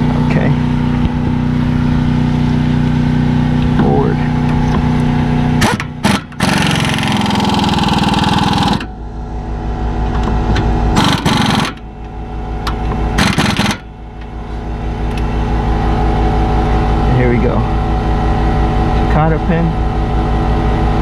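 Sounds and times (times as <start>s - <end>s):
low mechanical hum: 0.0s - 21.0s
impact wrench hammering: 5.6s - 8.9s, 10.2s - 11.9s, 13.2s - 13.9s.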